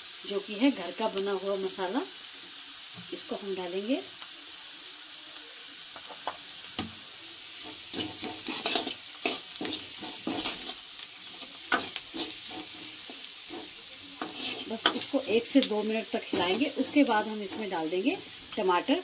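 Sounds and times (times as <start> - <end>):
onions sizzling in hot oil: 0.0 - 19.0
metal ladle scraping a pan: 7.6 - 15.1, 16.2 - 17.8.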